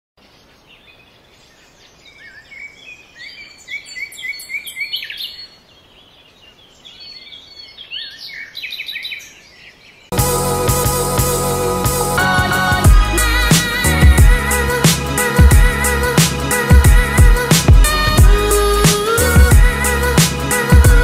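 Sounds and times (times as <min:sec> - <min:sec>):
songbirds chirping and singing: 0:00.2 - 0:10.8, 0:11.5 - 0:21.0
faint steady forest hiss: 0:00.2 - 0:20.8.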